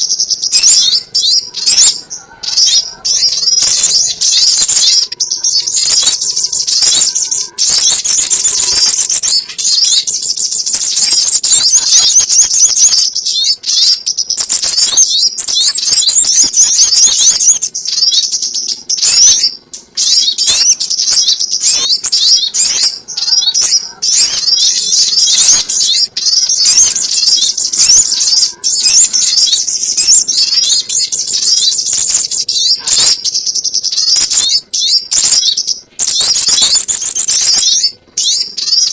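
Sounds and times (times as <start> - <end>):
birdsong of high chirps: 0.0 - 38.9.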